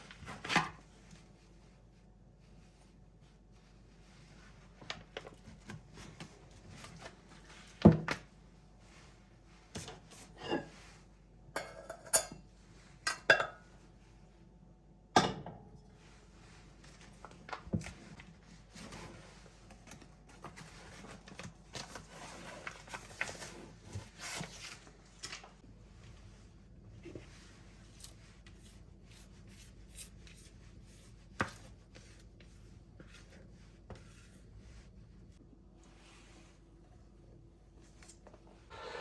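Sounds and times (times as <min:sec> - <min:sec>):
dishes and utensils clinking: 0:11.6 - 0:12.4, 0:13.1 - 0:13.7.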